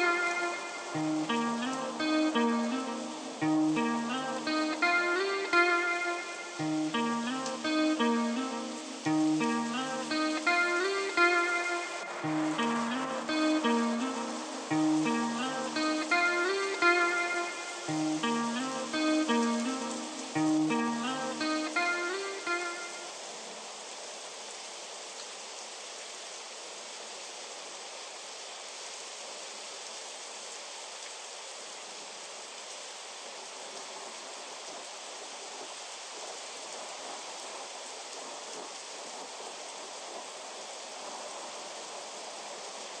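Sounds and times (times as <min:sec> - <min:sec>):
acoustic guitar notes: 0:00.0 - 0:23.1
steady rain falling: 0:00.0 - 0:43.0.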